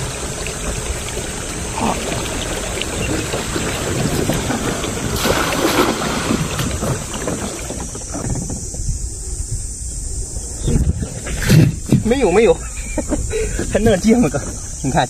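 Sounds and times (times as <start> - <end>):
water splashing and trickling: 0.0 - 9.3
wind rumbling on microphone: 0.0 - 15.0.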